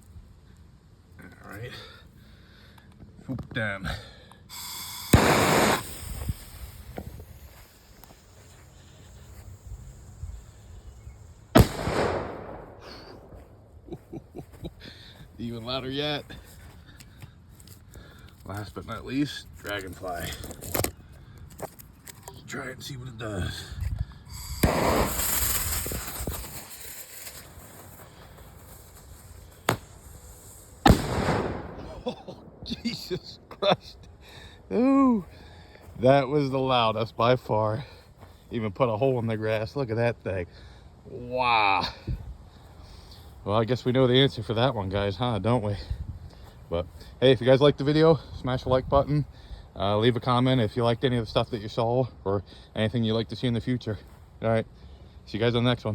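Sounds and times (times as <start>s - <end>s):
firecracker bang: 4.5s - 13.5s, 24.3s - 33.1s
fuse flaring: 4.5s - 13.8s, 24.3s - 32.8s.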